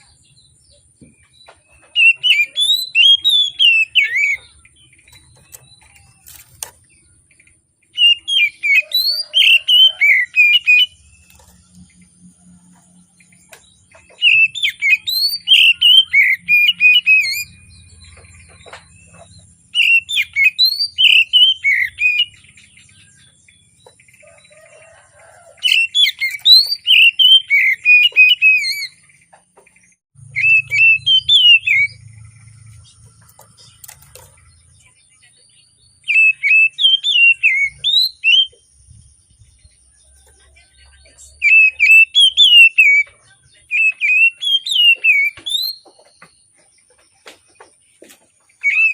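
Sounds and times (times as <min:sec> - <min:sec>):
bird singing whistled phrases: 0:01.9 - 0:04.4, 0:08.0 - 0:11.0, 0:14.2 - 0:17.6, 0:19.8 - 0:22.4, 0:25.6 - 0:29.0, 0:30.3 - 0:32.0, 0:36.0 - 0:38.6, 0:41.3 - 0:43.1, 0:43.7 - 0:45.8, 0:48.6 - 0:48.9.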